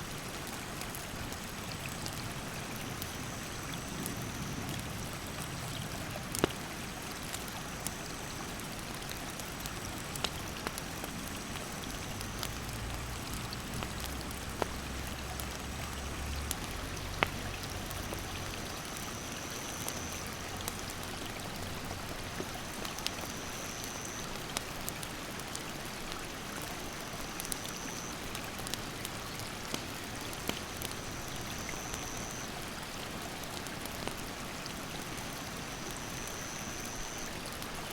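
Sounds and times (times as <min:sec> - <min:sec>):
campfire crackling and popping: 0:00.0 - 0:37.9.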